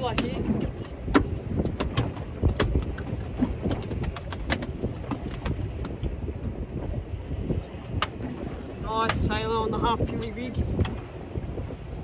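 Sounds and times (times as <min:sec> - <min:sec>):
fish flapping and thumping: 0:00.0 - 0:06.2
wind and water rumble: 0:00.0 - 0:12.0.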